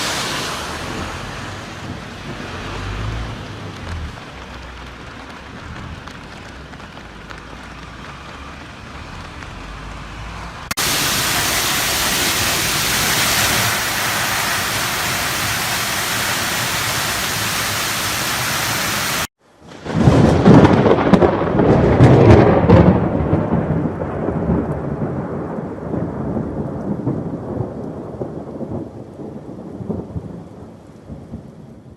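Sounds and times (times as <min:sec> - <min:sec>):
heavy downpour hissing: 0:00.0 - 0:09.8, 0:10.6 - 0:19.3
rain rushing: 0:00.0 - 0:31.8.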